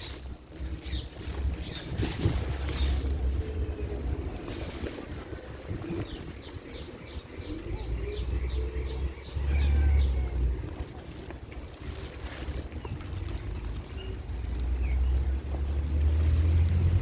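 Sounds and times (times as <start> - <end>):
wind rumbling on microphone: 0.0 - 17.0
small bird singing: 5.8 - 10.4.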